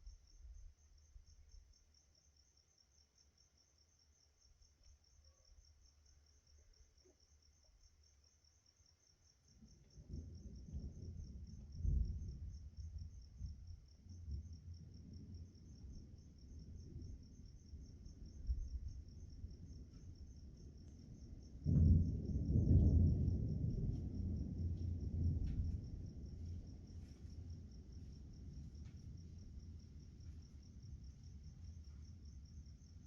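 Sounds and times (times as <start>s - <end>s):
crickets chirping: 0.0s - 33.0s
thunder rumbling: 10.0s - 31.9s.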